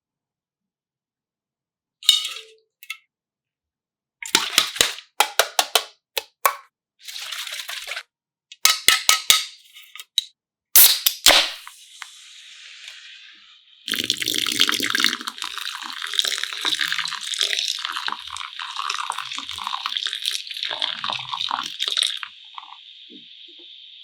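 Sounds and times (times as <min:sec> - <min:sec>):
sharp pops and cracks: 0:10.8 - 0:11.8
burst of hiss: 0:10.8 - 0:13.8.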